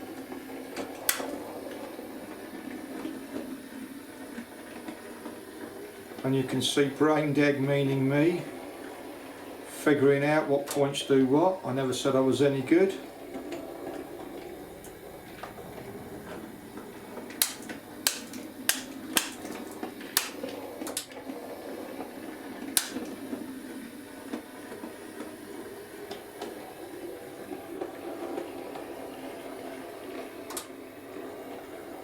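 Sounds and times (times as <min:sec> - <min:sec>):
model train motor humming: 0:05.2 - 0:29.8
sharp clicks: 0:17.4 - 0:19.6, 0:20.2 - 0:21.1, 0:22.8 - 0:23.1.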